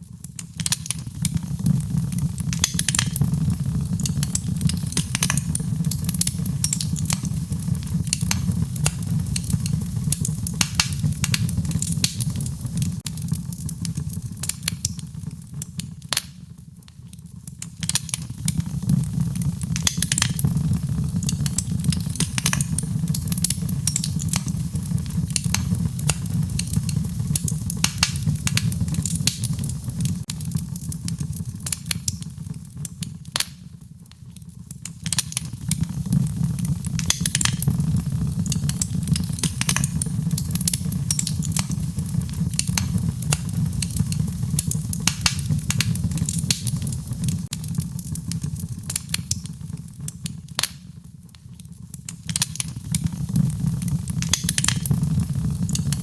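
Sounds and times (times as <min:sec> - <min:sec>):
fire crackling and popping: 0:00.0 - 0:56.0
low rumble of flames: 0:00.1 - 0:56.0.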